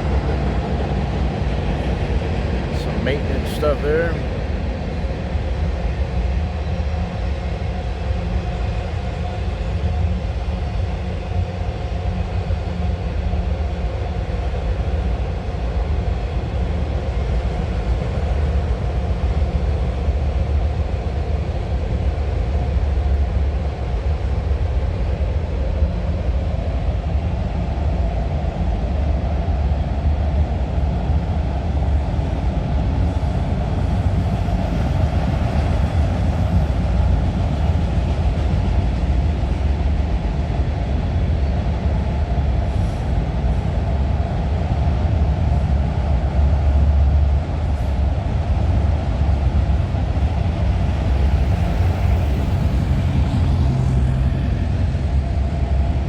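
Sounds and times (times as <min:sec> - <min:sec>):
low vehicle rumble: 0:48.2 - 0:56.0.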